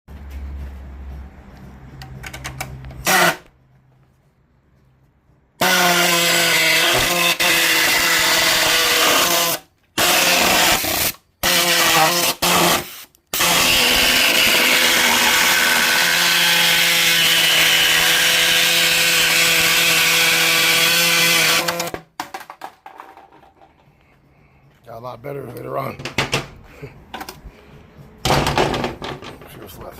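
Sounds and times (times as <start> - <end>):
electric power tool running: 13.4 - 22.0.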